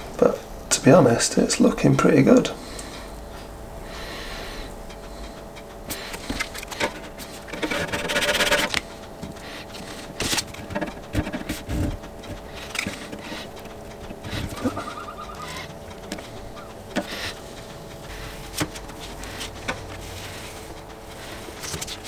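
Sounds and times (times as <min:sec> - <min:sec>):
tape crinkling and clicking: 0:04.9 - 0:22.0.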